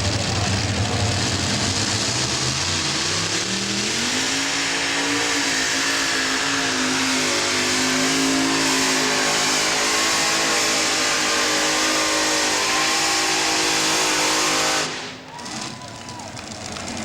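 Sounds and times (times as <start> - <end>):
tractor engines at full throttle: 0.0 - 17.0.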